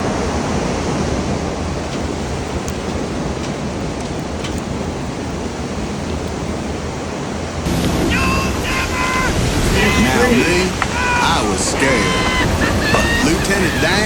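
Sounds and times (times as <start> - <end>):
wind buffeting microphone: 0.0 - 14.0
faint ticks: 2.6 - 4.8.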